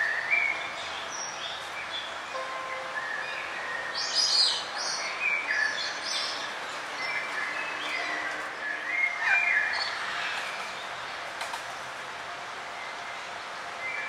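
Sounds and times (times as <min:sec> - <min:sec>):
steady background hiss: 0:00.0 - 0:07.4
forest birds chirping: 0:00.0 - 0:14.0.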